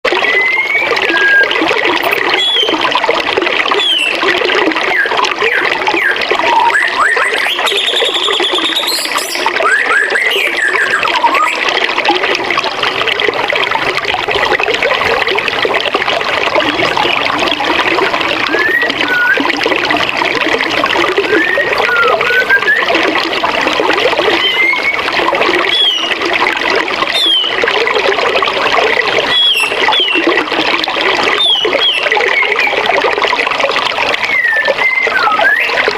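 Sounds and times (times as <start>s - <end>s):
birds chirping and whistling: 0.2s - 2.8s, 3.8s - 4.2s, 4.8s - 11.6s, 18.5s - 19.5s, 21.2s - 22.9s, 24.3s - 25.1s, 25.7s - 26.1s, 27.1s - 27.6s, 29.3s - 30.3s, 31.4s - 32.8s, 34.2s - 35.8s
rising whistle with high trill: 0.2s - 2.8s, 4.9s - 11.6s, 18.5s - 19.5s, 21.3s - 23.0s, 24.4s - 25.1s, 25.7s - 26.1s, 34.2s - 35.8s.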